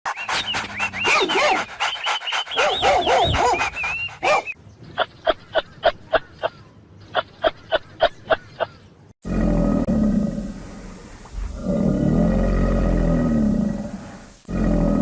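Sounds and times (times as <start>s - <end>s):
dogs yelping and whining: 0.3s - 4.6s
dog yipping: 2.5s - 4.6s.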